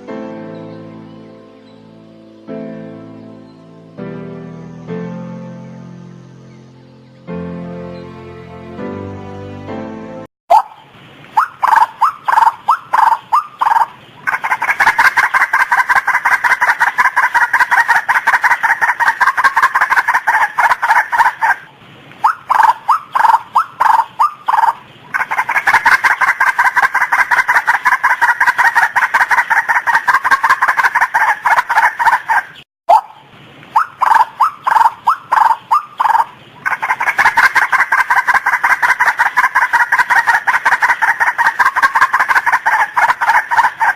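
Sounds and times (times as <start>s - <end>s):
waterhen calling: 10.5s - 43.9s.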